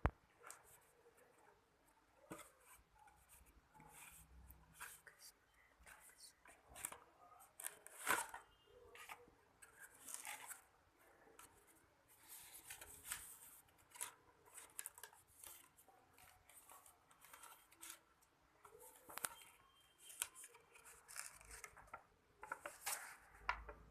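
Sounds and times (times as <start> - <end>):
paper being handled: 11.4 - 23.7.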